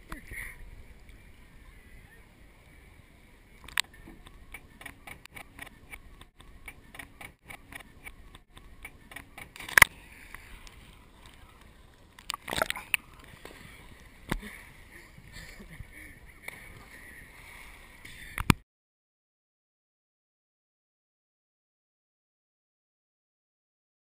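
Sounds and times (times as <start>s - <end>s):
water lapping and sloshing: 0.0s - 18.6s
sharp crack: 4.5s - 13.6s.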